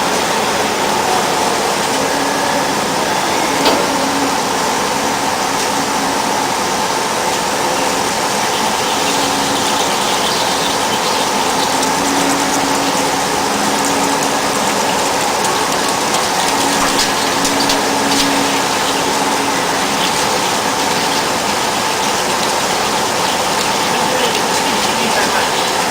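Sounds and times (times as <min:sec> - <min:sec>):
faint machine whine: 0:00.0 - 0:25.9.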